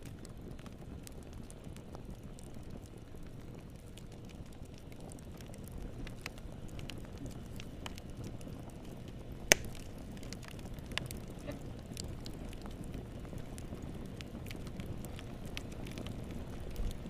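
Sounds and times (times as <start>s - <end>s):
fire rumbling with crackles: 0.0s - 17.0s
loud sharp fire pop: 9.5s - 9.8s.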